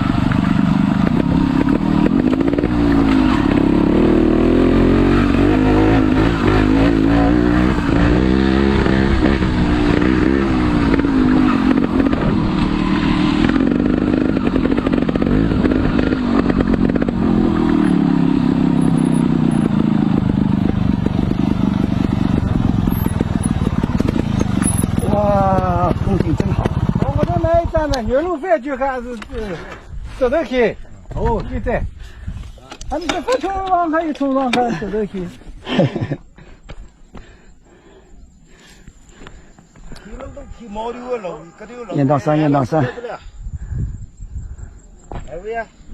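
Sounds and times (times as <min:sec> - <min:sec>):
motorcycle engine revving: 0:00.0 - 0:28.4.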